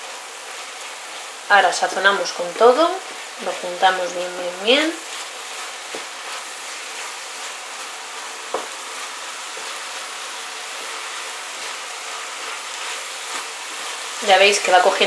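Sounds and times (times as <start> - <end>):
chicken and vegetables sizzling: 0.0 - 15.0.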